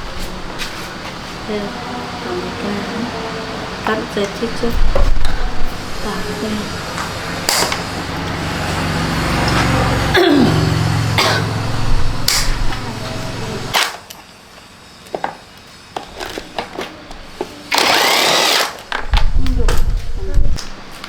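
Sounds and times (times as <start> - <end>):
low steady hum: 0.0 - 13.8.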